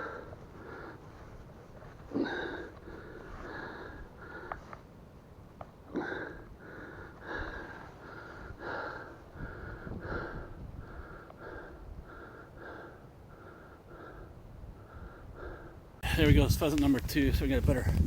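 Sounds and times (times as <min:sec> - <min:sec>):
man panting: 0:02.0 - 0:04.7, 0:05.9 - 0:16.2.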